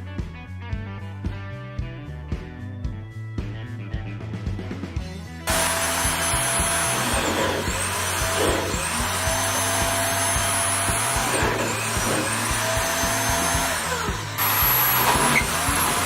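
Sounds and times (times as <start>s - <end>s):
bandsaw motor whine: 5.5s - 16.0s.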